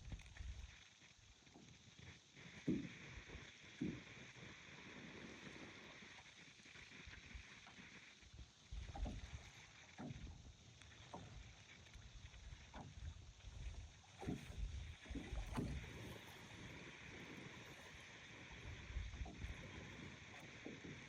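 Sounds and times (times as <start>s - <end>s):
waves lapping on shore: 14.2s - 21.0s.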